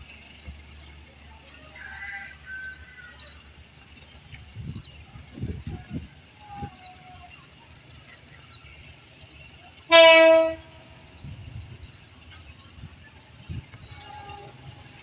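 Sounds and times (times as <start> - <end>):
train horn blast: 9.9 - 11.0, 13.8 - 15.0.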